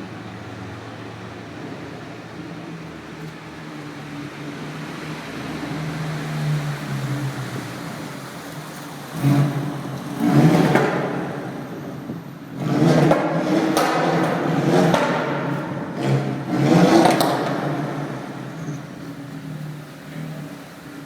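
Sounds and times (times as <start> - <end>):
exhaust cracks: 8.4 - 21.0
car engine accelerating under boost: 9.0 - 21.0.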